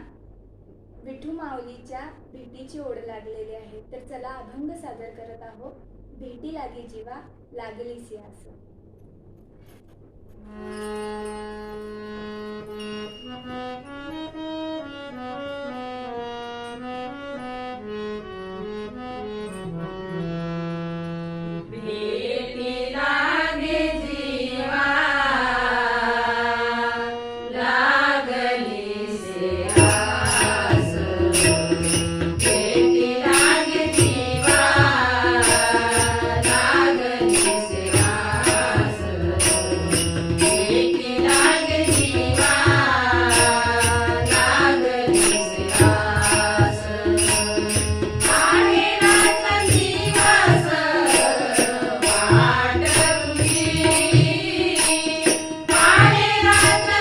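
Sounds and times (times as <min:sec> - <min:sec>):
hand cymbals: 0:10.4 - 0:14.3, 0:29.5 - 0:57.0
harmonium: 0:10.4 - 0:22.4, 0:24.7 - 0:57.0
woman singing devotional song: 0:21.7 - 0:57.0
tabla beat: 0:29.1 - 0:57.0.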